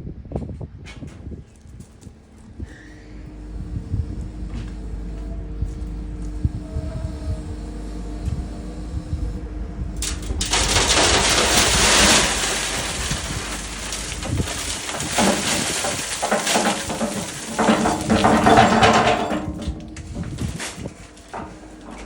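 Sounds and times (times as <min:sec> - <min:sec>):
machine engine hum: 0:01.2 - 0:22.0
loose stone pouring and rattling: 0:10.1 - 0:22.0.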